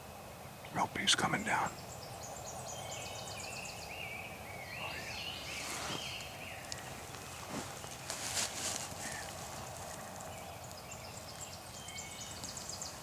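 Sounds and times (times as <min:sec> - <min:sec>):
songbirds singing: 0:00.0 - 0:13.0
brief rustle: 0:05.5 - 0:10.1.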